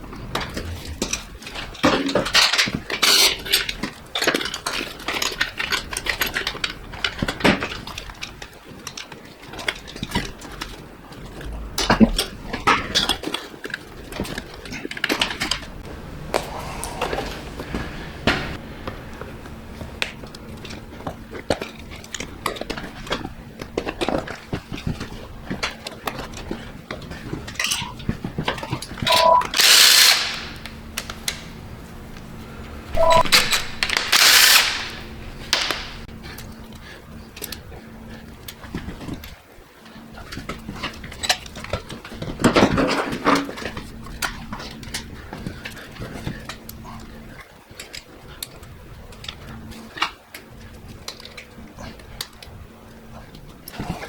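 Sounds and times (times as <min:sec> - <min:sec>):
power tool bursts: 0:29.1 - 0:30.6, 0:33.0 - 0:36.0
hand tools clicking and knocking: 0:33.0 - 0:36.1.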